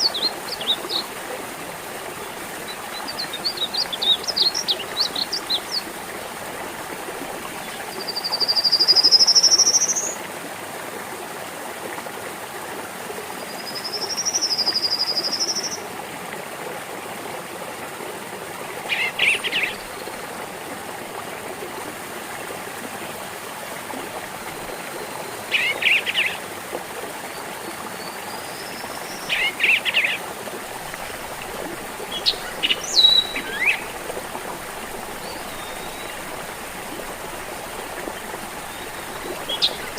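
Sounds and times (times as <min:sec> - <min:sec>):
stream babbling: 0:00.0 - 0:39.9
birds calling: 0:29.3 - 0:39.9.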